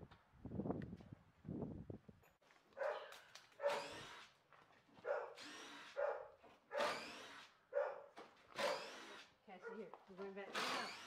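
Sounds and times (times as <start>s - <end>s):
dog barking: 2.8s - 3.9s, 5.0s - 5.4s, 6.0s - 6.9s, 7.7s - 8.8s.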